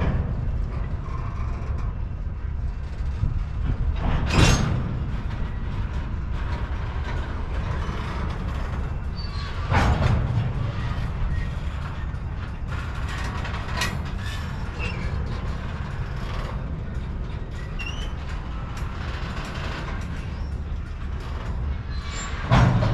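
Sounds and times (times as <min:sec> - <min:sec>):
clicks and creaks: 0:00.0 - 0:22.9
train wheels rumbling on rail: 0:00.0 - 0:22.9.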